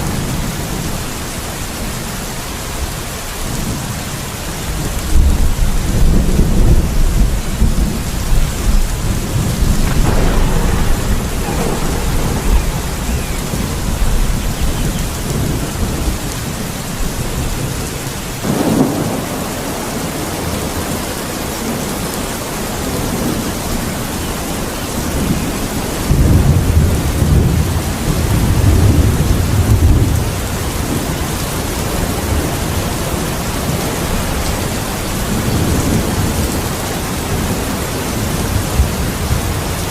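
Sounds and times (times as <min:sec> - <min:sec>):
low thunder rumbling: 0:00.0 - 0:39.9
steady rain: 0:00.0 - 0:39.9
sharp thunderclap: 0:05.1 - 0:20.6.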